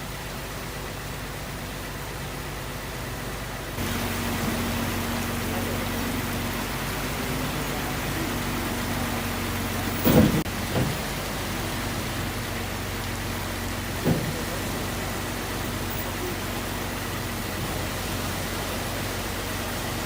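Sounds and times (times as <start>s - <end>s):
rushing water: 3.8s - 20.0s
low thuds: 9.8s - 11.2s.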